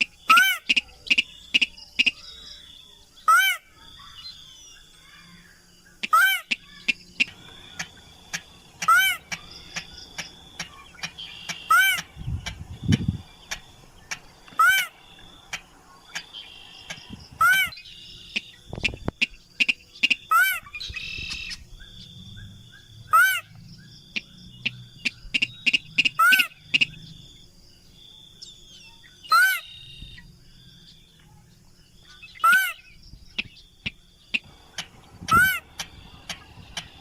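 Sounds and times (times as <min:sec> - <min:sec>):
bird call loud and arching: 0:00.0 - 0:37.0
small chirps and clicks: 0:06.0 - 0:14.6, 0:15.2 - 0:17.2, 0:18.3 - 0:20.2, 0:20.8 - 0:21.7, 0:33.3 - 0:37.0.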